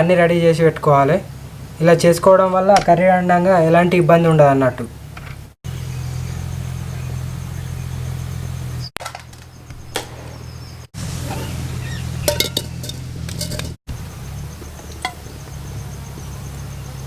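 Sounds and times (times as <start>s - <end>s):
steady low hum: 9.5s - 17.0s
short sharp clinks: 12.2s - 13.8s.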